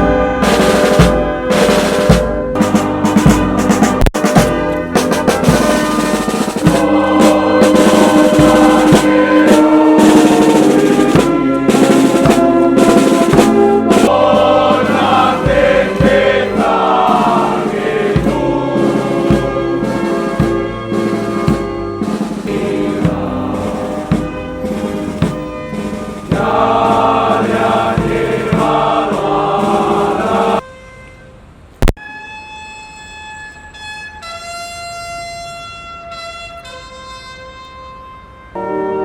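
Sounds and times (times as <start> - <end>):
band music with drums: 0.0 - 30.6
choir singing: 6.0 - 30.6.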